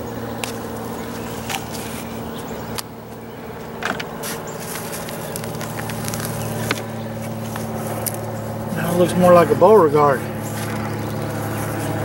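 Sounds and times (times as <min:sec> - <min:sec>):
low machine hum: 0:00.0 - 0:12.0
hands digging in soil: 0:04.0 - 0:08.2.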